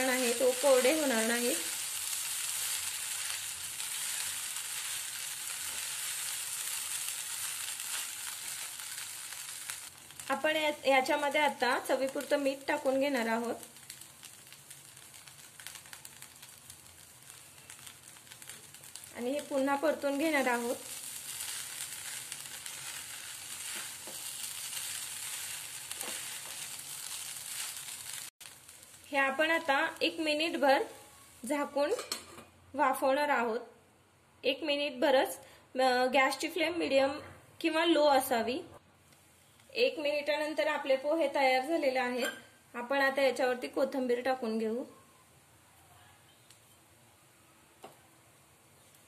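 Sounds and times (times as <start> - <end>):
food sizzling in a pan: 0.0 - 32.4
spatula stirring: 20.9 - 28.2.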